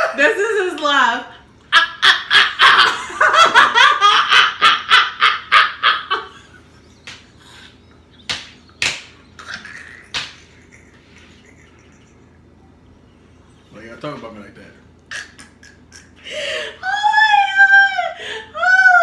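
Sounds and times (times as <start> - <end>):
person laughing heartily: 1.6 - 7.8, 9.4 - 12.6, 15.1 - 17.3.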